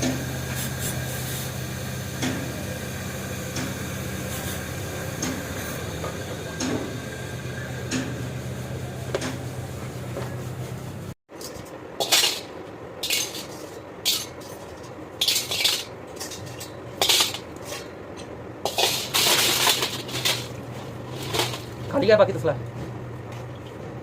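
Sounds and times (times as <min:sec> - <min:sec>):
low machine hum: 0:00.0 - 0:24.0
metal parts clinking and scraping: 0:11.4 - 0:17.9, 0:18.7 - 0:21.9.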